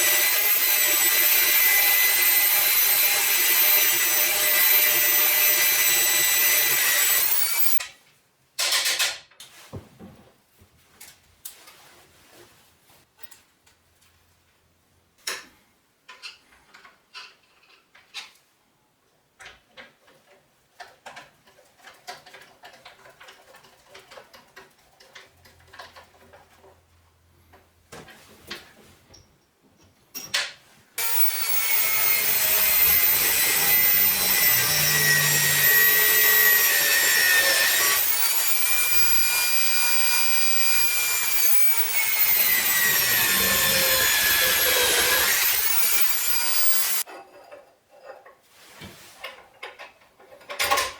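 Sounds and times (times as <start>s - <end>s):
angle grinder cutting metal: 0.0s - 7.8s, 31.0s - 47.0s
clicks and knocks of parts: 8.6s - 9.5s, 19.4s - 26.8s.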